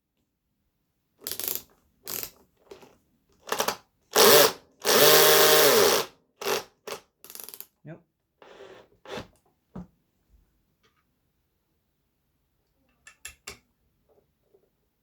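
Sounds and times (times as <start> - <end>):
power drill bursts: 3.5 - 7.0.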